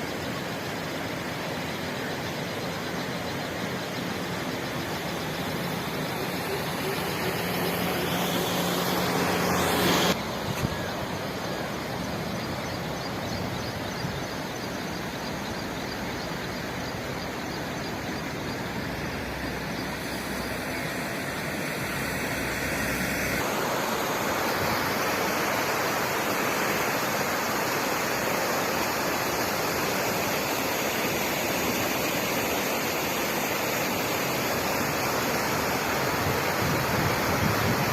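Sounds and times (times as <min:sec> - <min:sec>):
floodwater rushing: 0:01.0 - 0:12.1
engine hum: 0:01.9 - 0:13.0.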